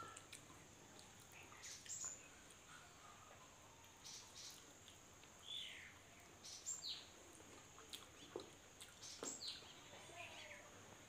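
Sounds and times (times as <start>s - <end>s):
faint bird chirps: 0.0s - 0.4s, 1.3s - 4.7s, 5.4s - 7.2s, 8.1s - 10.8s
mouth clicks from chewing: 7.5s - 9.3s.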